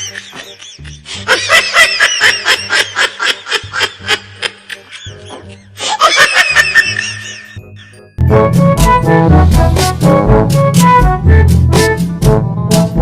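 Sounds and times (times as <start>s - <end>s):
high-pitched cackling laugh: 0.0s - 8.0s
music with low beat: 8.2s - 13.0s.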